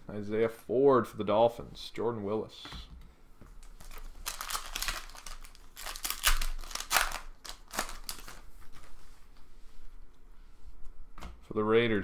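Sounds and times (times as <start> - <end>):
foil wrapper crinkling: 3.6 - 8.9.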